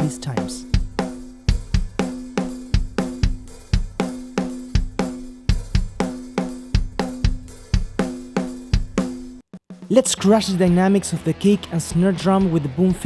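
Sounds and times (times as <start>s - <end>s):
drum kit playing: 0.0s - 13.0s.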